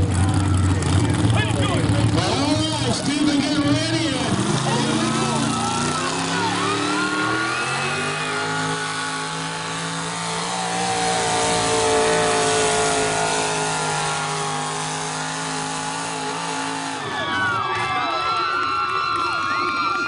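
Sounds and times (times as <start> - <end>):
crowd cheering: 0.0 - 20.0
engine at full throttle: 0.0 - 20.0.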